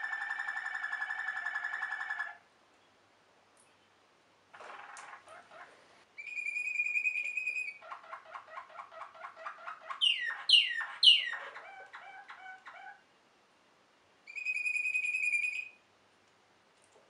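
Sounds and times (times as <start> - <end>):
canary singing: 0.0 - 2.4, 4.6 - 13.1, 14.3 - 15.8.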